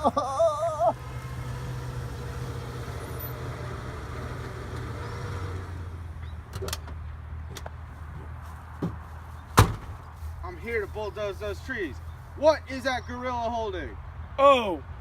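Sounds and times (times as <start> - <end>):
bulldozer engine running: 0.0 - 7.2
sharp knocks: 9.6 - 10.0.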